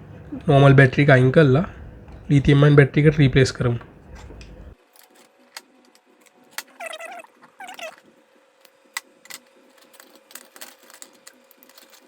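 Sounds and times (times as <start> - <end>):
short animal calls: 6.8 - 8.0.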